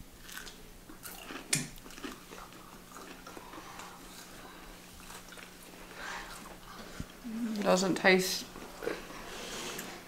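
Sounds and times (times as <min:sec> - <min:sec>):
faint steady hum: 0:00.0 - 0:10.0
crisp fried fish crunch: 0:00.2 - 0:04.4
quiet chewing: 0:00.2 - 0:07.8, 0:08.5 - 0:10.0.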